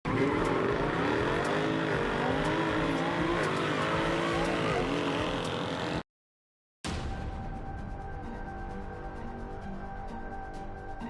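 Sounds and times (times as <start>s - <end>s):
car engine accelerating hard: 0.1s - 6.0s.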